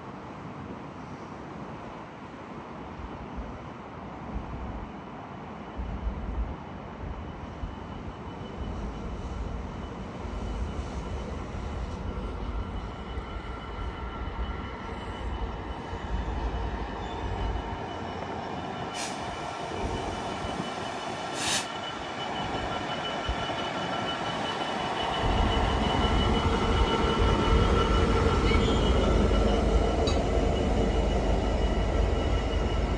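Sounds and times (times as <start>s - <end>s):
train rumbling on track: 0.2s - 32.9s
high-pitched squeal: 19.0s - 32.9s.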